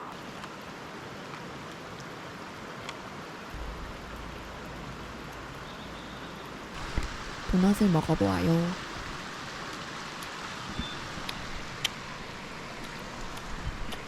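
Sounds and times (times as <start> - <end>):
stream flowing over rocks: 0.0 - 14.0
low rumble: 3.5 - 9.3.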